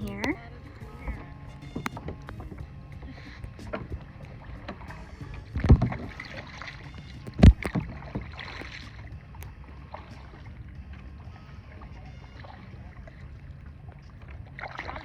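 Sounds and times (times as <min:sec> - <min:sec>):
loud low thumps: 0:00.0 - 0:11.8
paddle strokes splashing: 0:00.0 - 0:15.0.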